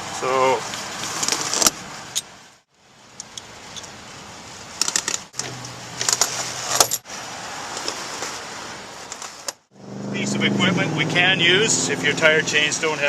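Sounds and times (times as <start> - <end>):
metal chain links clinking: 6.7 - 7.0.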